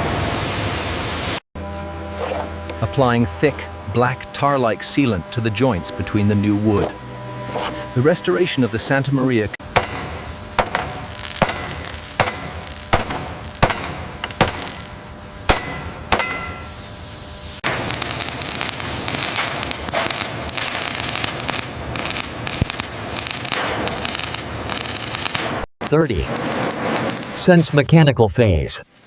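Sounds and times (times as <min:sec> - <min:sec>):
hammering on wood: 0:09.7 - 0:14.8, 0:15.5 - 0:16.6
crackling scraping noise: 0:10.2 - 0:15.0, 0:17.6 - 0:27.8.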